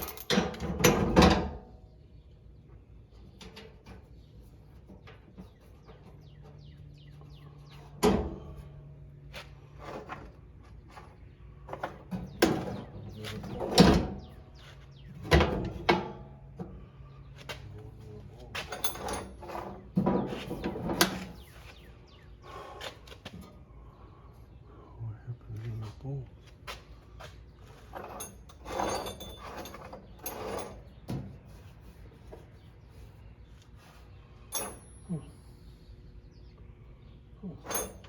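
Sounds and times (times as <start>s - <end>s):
tools and parts clattering: 0.0s - 1.8s, 18.4s - 21.6s, 27.6s - 31.5s, 34.5s - 35.1s, 37.6s - 38.0s.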